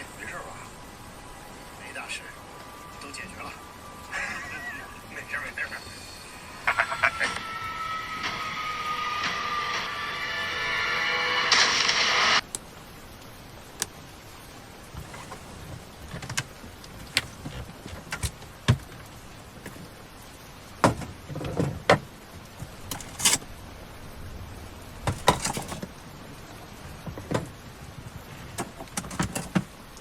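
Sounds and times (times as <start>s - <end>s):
low background hiss: 0.0s - 7.9s, 12.4s - 30.0s
objects knocking and clattering: 14.9s - 20.0s, 20.8s - 23.5s, 25.0s - 27.7s, 28.5s - 29.8s.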